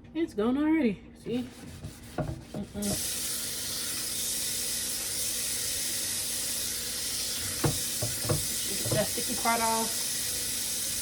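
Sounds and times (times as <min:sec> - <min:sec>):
faucet running water into sink: 0:02.8 - 0:11.0.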